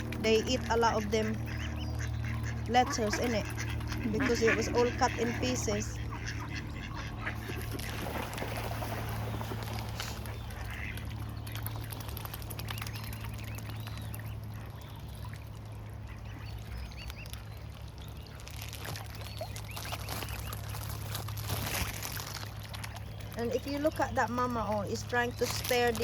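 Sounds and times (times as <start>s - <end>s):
ducks quacking: 0.0s - 12.1s
ducks dabbling and splashing: 0.0s - 26.0s
steady low hum: 0.0s - 26.0s.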